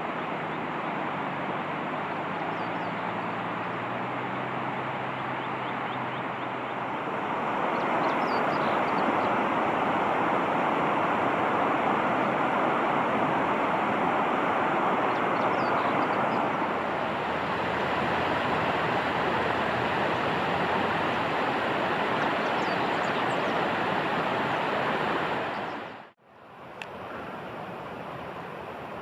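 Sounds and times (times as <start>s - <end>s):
steady rushing noise: 0.0s - 29.0s
faint high bird chirps: 7.7s - 9.3s, 15.1s - 16.5s.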